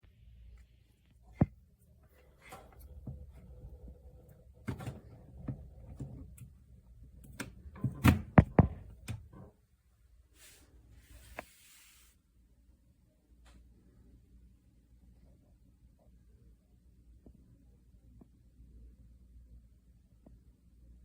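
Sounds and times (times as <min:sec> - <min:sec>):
objects knocking and clunking: 0:01.3 - 0:06.5, 0:07.3 - 0:09.6
short hissing or rustling: 0:10.4 - 0:12.2.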